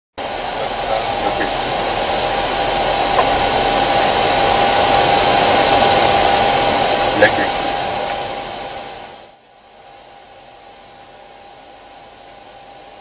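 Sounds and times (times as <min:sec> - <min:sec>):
rushing cockpit airflow: 0:00.2 - 0:09.3
steady whine: 0:00.2 - 0:13.0.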